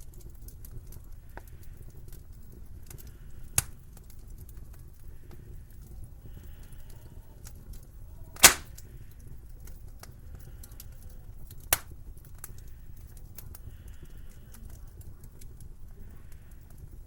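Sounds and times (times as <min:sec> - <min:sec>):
wood fire crackling: 0:00.0 - 0:17.0
sharp fire pops: 0:03.5 - 0:04.2, 0:08.4 - 0:08.9, 0:11.5 - 0:12.6.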